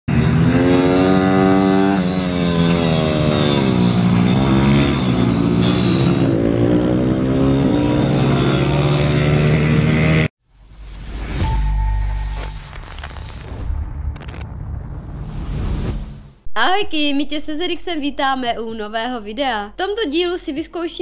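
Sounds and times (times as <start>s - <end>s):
motorbike engine revving: 0.1s - 10.3s.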